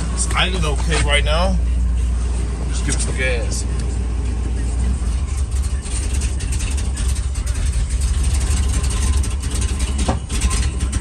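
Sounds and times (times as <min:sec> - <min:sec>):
engine running rough: 0:00.0 - 0:11.0.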